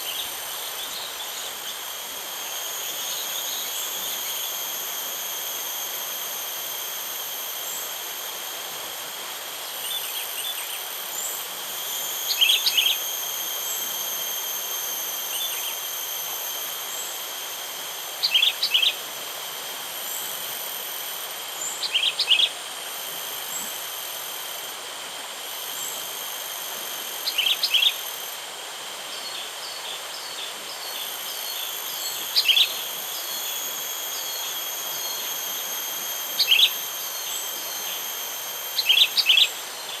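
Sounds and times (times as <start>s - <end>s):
high insect drone: 0.0s - 40.0s.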